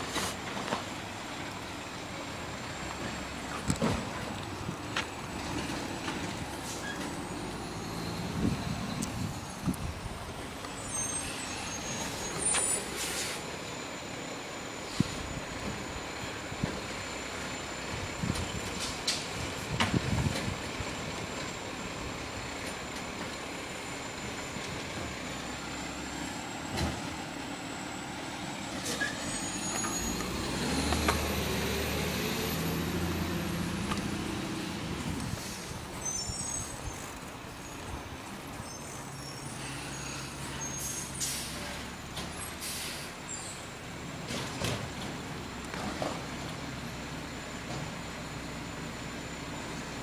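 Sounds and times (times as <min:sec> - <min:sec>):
garbage truck diesel engine: 0:00.0 - 0:50.0
sharp hisses: 0:10.9 - 0:13.4, 0:42.5 - 0:43.6.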